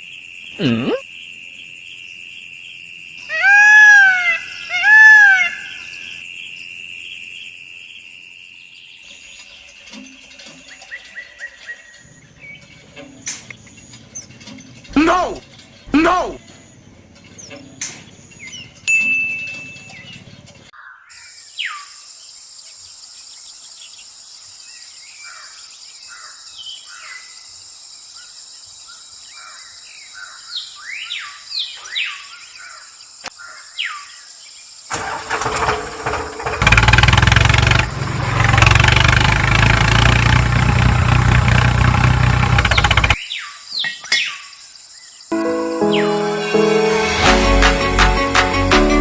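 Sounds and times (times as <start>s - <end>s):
birds chirping: 0.5s - 1.0s, 3.2s - 6.6s, 9.0s - 21.8s, 41.5s - 46.6s
loud motor rumbling: 14.1s - 16.4s, 34.9s - 43.2s.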